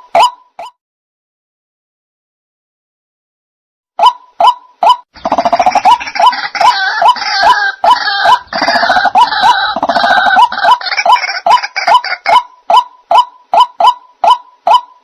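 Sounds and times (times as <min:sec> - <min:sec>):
chorus of harsh bird calls: 0:05.1 - 0:12.7.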